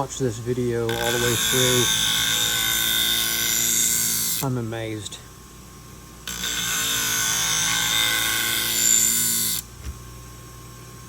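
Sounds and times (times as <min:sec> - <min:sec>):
scissor blade grinding on wheel: 0:00.8 - 0:04.5, 0:06.3 - 0:09.6
sharpener motor hum: 0:00.8 - 0:04.5, 0:06.2 - 0:10.0.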